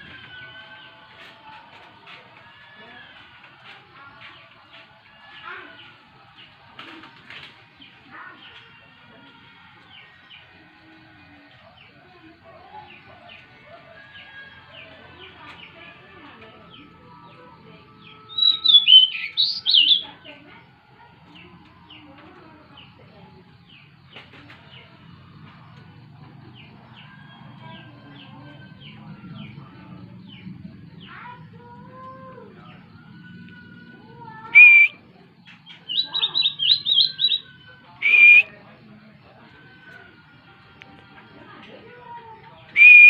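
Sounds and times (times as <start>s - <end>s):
bird warbling song: 18.3s - 20.1s, 34.5s - 38.4s
faint bird chirps: 18.3s - 20.1s, 34.2s - 38.6s.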